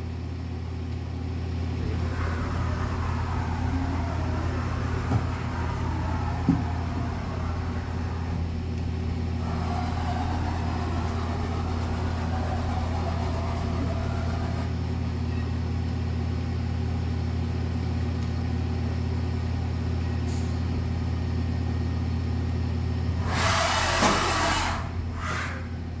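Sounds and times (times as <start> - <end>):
machine running with low hum: 0.0 - 26.0
loud hissing rush: 1.7 - 14.8.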